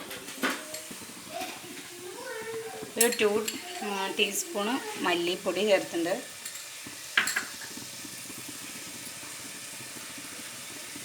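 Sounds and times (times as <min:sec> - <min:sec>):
masala sizzling in a clay pot: 0:00.0 - 0:11.0
utensil clinking against pot: 0:03.0 - 0:04.1, 0:06.4 - 0:07.8.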